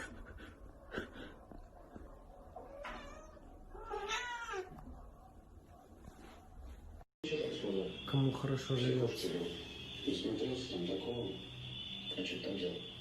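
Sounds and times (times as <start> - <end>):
cat meowing: 2.6 - 4.8.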